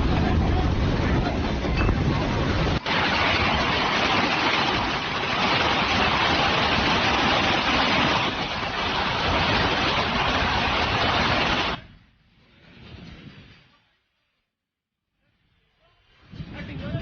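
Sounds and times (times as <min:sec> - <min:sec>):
heavy rain downpour: 0:00.0 - 0:11.8
wind: 0:00.0 - 0:17.0.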